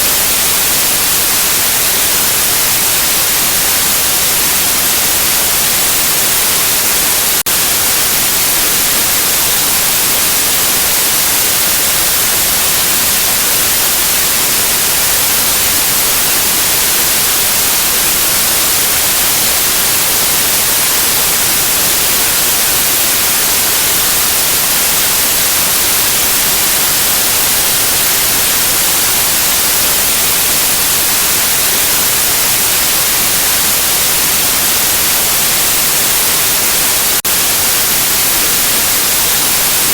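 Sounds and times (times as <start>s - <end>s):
loud white noise hiss: 0.0s - 39.9s.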